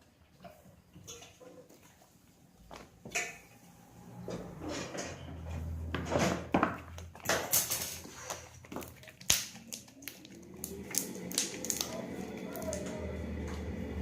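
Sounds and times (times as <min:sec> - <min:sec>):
slime squelching and smacking: 0:06.8 - 0:12.9.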